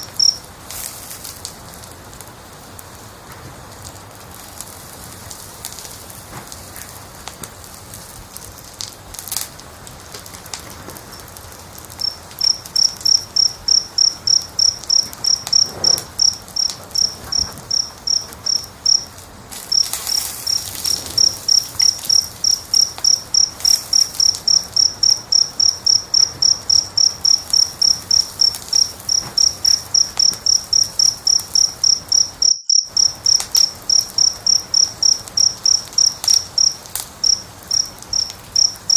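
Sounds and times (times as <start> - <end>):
cricket chirping: 0.0 - 0.5, 11.0 - 38.9
wood fire crackling and popping: 0.0 - 38.9.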